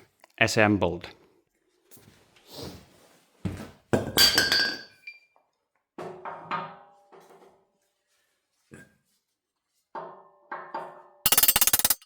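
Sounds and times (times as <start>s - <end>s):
steel parts clanking: 11.3s - 12.0s.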